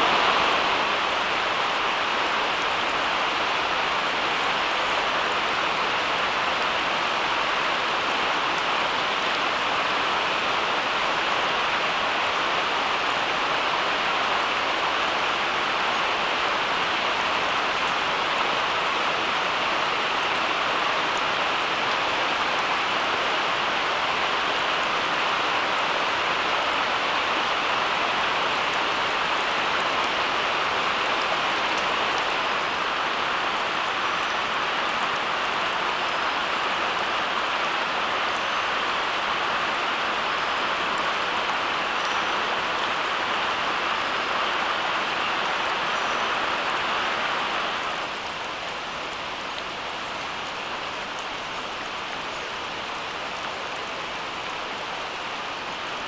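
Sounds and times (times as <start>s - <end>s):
steady rushing hiss: 0.0s - 2.0s.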